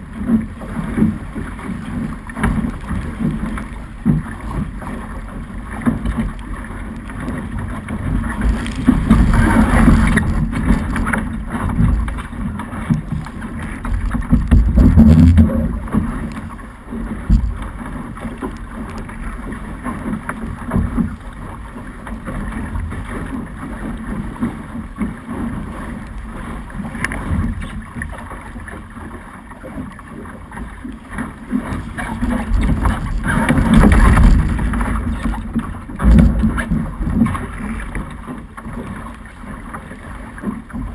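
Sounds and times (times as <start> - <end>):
water rushing along hull: 0.0 - 40.9
wind buffeting microphone: 7.5 - 13.2, 31.6 - 37.8.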